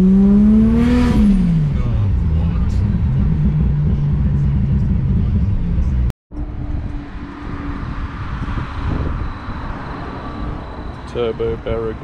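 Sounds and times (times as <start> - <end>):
car engine droning in cabin: 0.0 - 12.0
car engine idling: 1.4 - 6.9.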